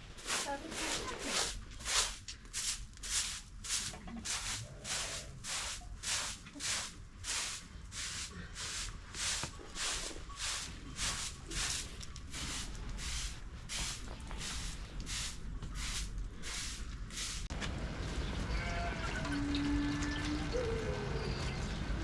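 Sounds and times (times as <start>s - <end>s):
rhythmic hissing swishes: 0.2s - 17.5s.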